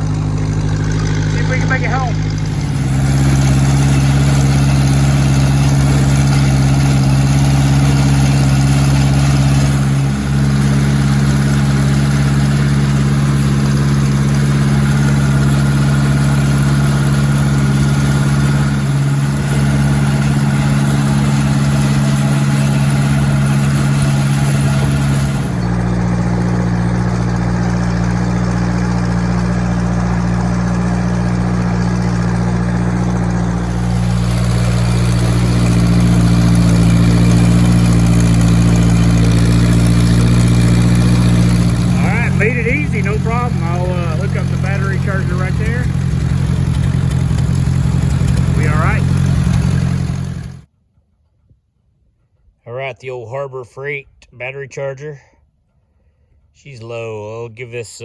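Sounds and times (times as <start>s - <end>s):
tractor engine running: 0.0s - 50.7s.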